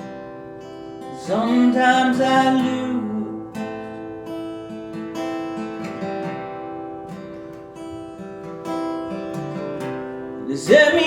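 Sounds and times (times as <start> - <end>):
acoustic guitar strumming: 0.0 - 11.0
person singing: 1.1 - 3.6, 10.4 - 11.0.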